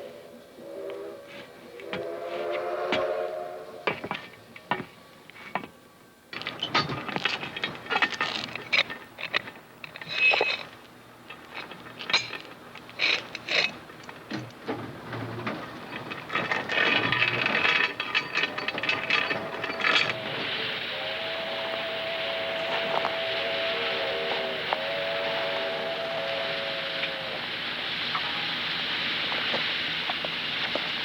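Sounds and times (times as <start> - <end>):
machinery clanking and clicking: 6.3 - 25.0.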